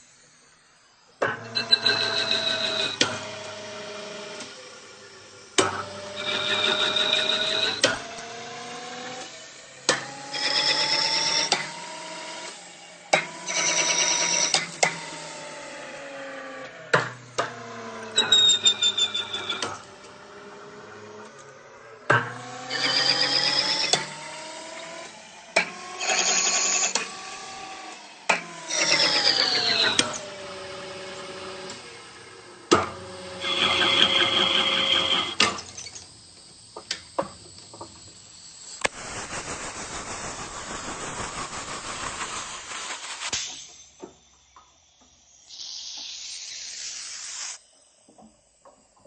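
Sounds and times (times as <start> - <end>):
metal lathe whine: 0.0 - 38.9
high ringing cutting tone: 1.3 - 3.3, 5.8 - 8.1, 10.2 - 11.6, 18.0 - 20.2, 22.6 - 24.2, 33.2 - 36.1.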